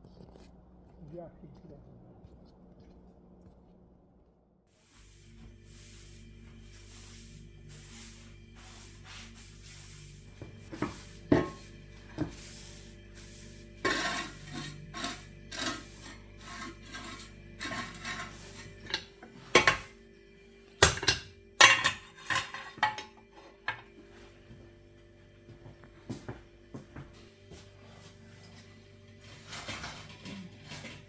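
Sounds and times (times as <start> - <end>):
dishes and cutlery clinking: 10.7 - 12.4, 13.8 - 20.0, 20.8 - 24.0.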